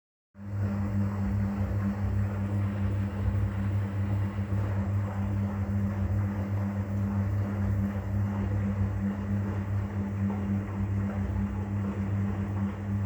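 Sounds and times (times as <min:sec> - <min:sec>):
washing machine churning: 0:00.4 - 0:13.0.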